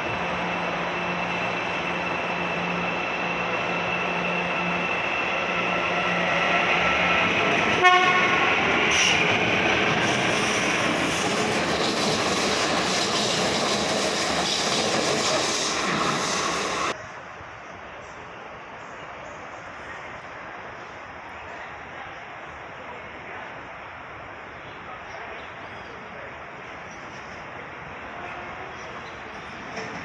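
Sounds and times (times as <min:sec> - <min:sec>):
train rail rumble: 0:00.0 - 0:24.9
train horn blast: 0:07.7 - 0:08.6.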